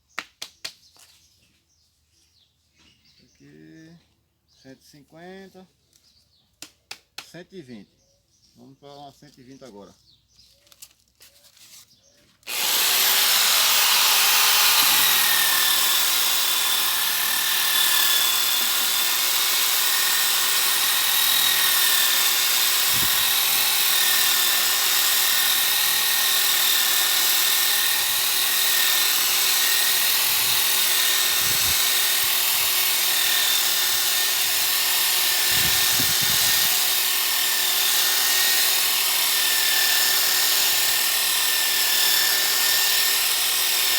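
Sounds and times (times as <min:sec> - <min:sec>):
power sander whining: 0:12.4 - 0:43.9
sanding disc hissing on wood: 0:12.5 - 0:16.8, 0:17.7 - 0:20.2.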